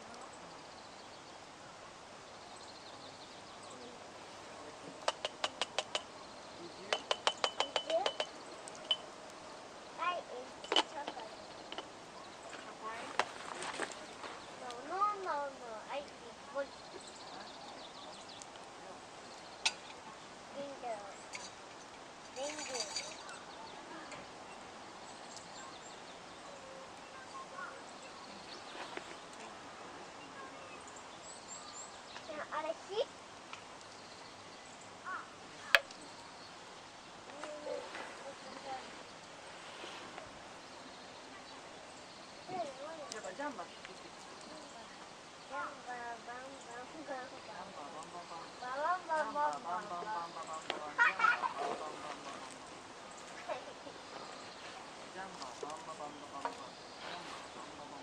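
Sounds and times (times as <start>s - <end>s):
campfire hissing: 0.0s - 58.0s
fire crackle: 3.3s - 24.2s, 30.9s - 40.9s, 41.9s - 58.0s.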